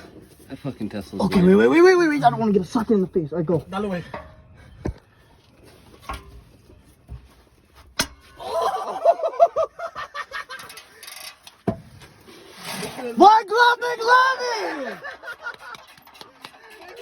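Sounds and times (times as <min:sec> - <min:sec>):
man yelping high-pitched: 0:13.2 - 0:15.0.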